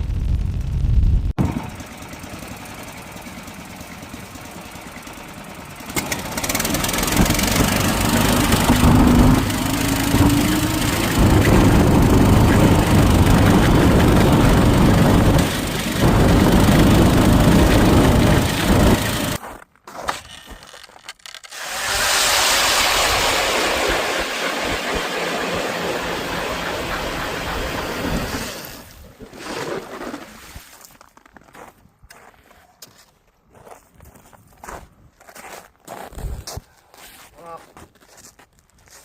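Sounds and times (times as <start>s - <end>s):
small gasoline engine running: 1.4s - 19.4s, 21.5s - 28.9s
heavy rushing noise: 6.4s - 19.4s, 21.9s - 28.9s.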